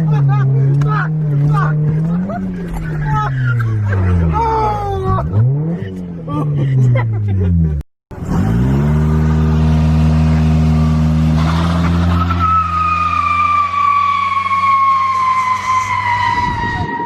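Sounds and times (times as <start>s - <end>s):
car engine revving: 0.0s - 16.2s
tyres squealing: 11.4s - 17.0s.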